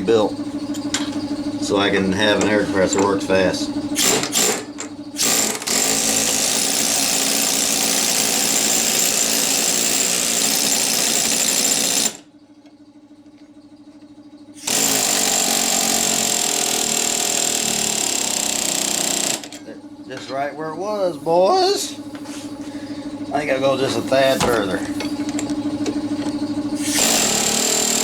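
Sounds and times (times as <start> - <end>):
pneumatic air hammer: 4.0 - 12.3, 14.6 - 19.6, 26.2 - 28.0.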